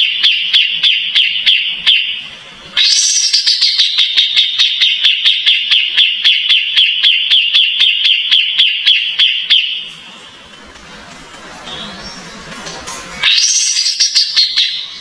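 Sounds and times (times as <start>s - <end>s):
bird singing sharp repeated notes: 0.0s - 10.0s, 13.2s - 15.0s
faint background noise: 0.0s - 15.0s.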